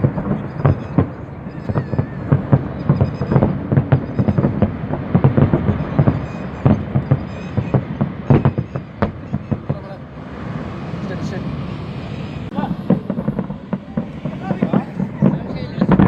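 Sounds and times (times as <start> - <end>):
fireworks bangs: 0.0 - 16.0
low rumble: 7.8 - 16.0.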